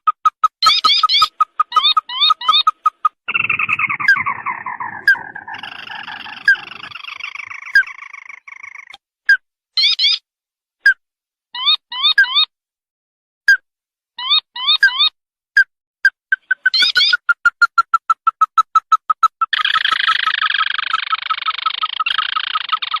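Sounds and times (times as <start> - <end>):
bird call rising notes: 0.5 - 8.9.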